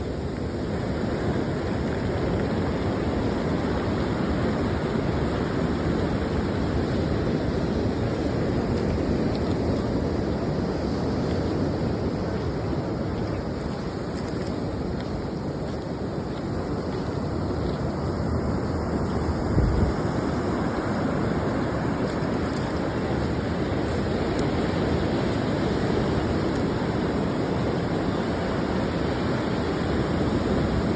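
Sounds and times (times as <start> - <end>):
ocean surf rushing: 0.0 - 30.9
wind buffeting microphone: 0.0 - 30.9.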